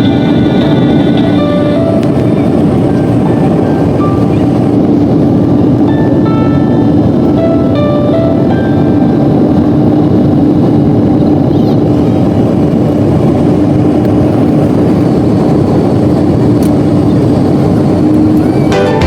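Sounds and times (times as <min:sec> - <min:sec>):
jet engines and airflow rush: 0:00.0 - 0:19.0.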